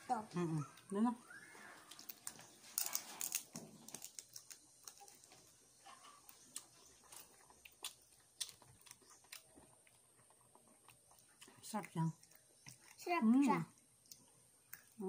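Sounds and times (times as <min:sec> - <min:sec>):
person chewing crunchy food: 0:01.6 - 0:13.1.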